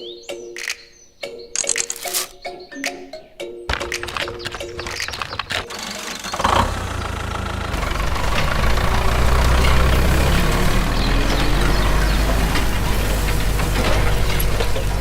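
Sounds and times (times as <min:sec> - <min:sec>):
small engine running: 0:04.1 - 0:15.0.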